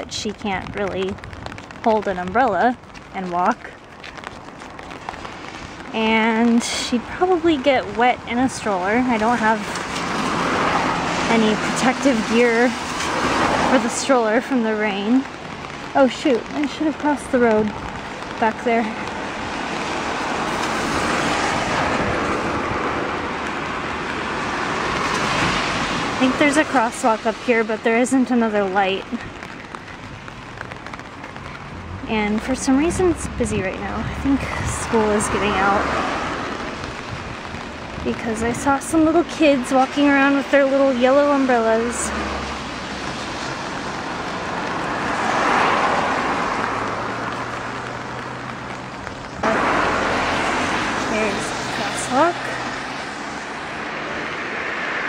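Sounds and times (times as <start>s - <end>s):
tyre hiss on wet street: 3.7s - 55.0s
car tyres hissing on wet road: 10.0s - 13.7s, 34.6s - 38.0s, 42.1s - 55.0s.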